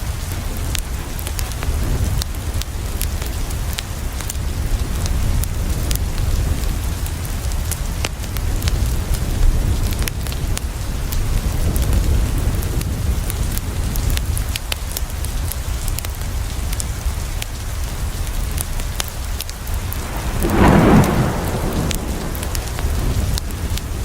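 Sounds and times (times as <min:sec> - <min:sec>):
rain on a window: 0:00.0 - 0:24.0
wood fire crackles: 0:19.0 - 0:24.0
low rumble: 0:19.5 - 0:24.0.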